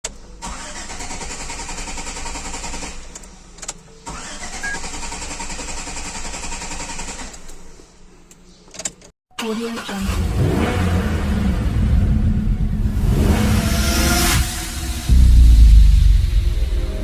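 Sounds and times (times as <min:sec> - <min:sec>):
car starter motor cranking: 0:00.4 - 0:03.0, 0:04.0 - 0:07.5, 0:09.4 - 0:10.5.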